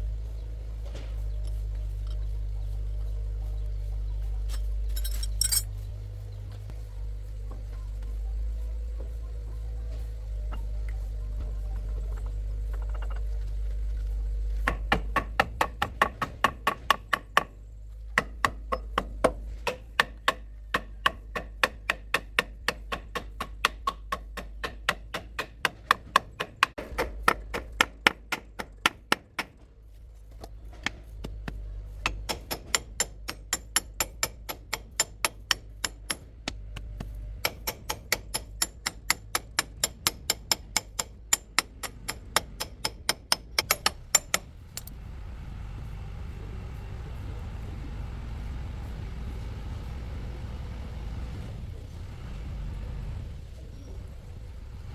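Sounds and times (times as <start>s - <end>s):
low hum: 0.0s - 14.8s, 29.9s - 54.9s
hammering knocks: 18.2s - 29.7s.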